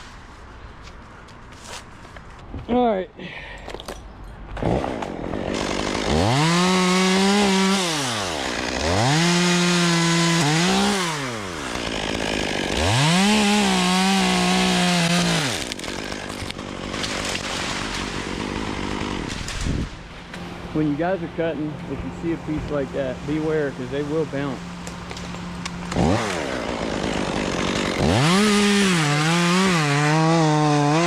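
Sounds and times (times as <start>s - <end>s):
chainsaw revving and cutting wood: 4.6s - 31.0s.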